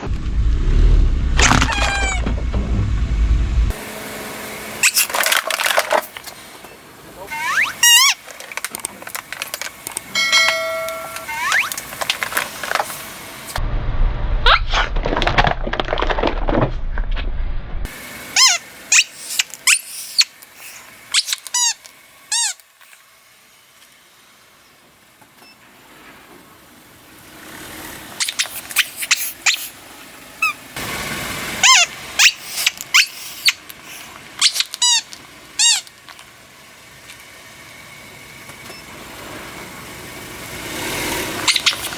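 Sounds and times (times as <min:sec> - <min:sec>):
low rumble: 0:00.0 - 0:03.8, 0:13.5 - 0:17.9
rubber squeaky toys squeaking: 0:01.4 - 0:02.3, 0:04.8 - 0:05.3, 0:07.2 - 0:09.2, 0:10.8 - 0:11.9, 0:18.4 - 0:23.0, 0:28.2 - 0:29.8, 0:30.4 - 0:30.6, 0:31.6 - 0:36.2, 0:41.4 - 0:41.9.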